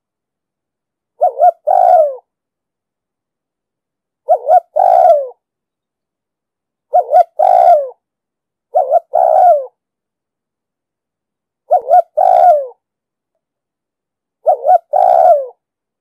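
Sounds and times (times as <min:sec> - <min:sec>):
dove cooing: 0:01.2 - 0:02.3, 0:04.2 - 0:05.4, 0:06.9 - 0:08.0, 0:08.7 - 0:09.8, 0:11.7 - 0:12.8, 0:14.4 - 0:15.6.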